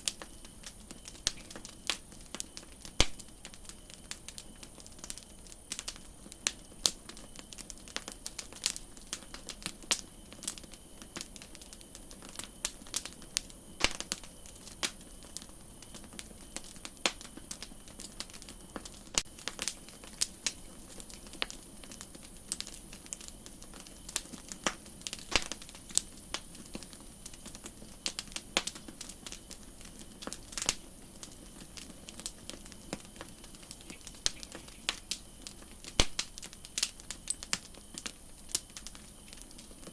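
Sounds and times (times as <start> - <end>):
campfire crackling: 0.0 - 39.9
faint high hiss: 8.8 - 38.9.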